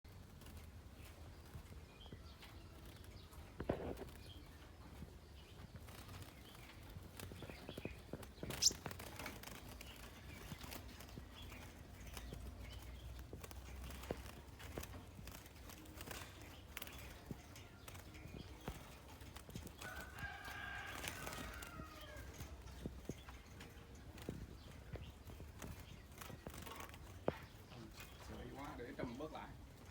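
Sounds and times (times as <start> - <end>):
bird ticking calls: 7.4 - 9.0.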